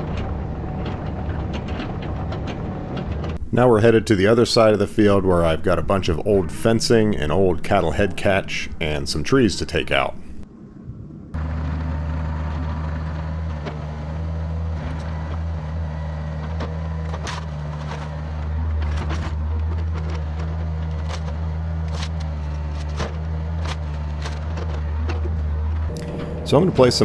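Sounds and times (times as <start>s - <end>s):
excavator diesel engine running: 3.4s - 10.4s, 25.9s - 27.0s.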